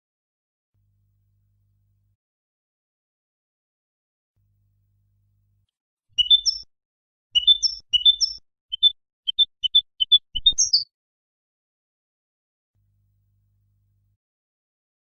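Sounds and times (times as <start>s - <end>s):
goldfinch twittering song: 6.2s - 6.7s, 7.4s - 10.9s.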